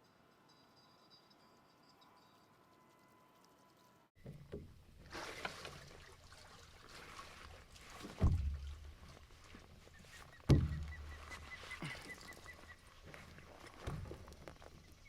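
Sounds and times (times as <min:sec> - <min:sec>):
water pouring and trickling: 0:04.2 - 0:14.8.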